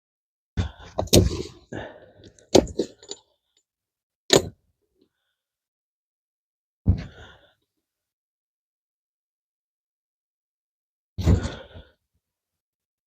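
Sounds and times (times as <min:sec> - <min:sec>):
metal chain clanking: 0:02.7 - 0:03.2.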